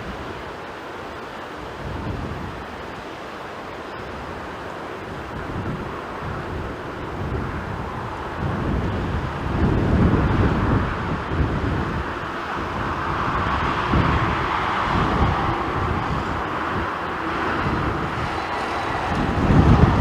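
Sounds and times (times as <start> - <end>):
jet engines roaring: 0.0 - 20.0
wind buffeting microphone: 0.0 - 20.0.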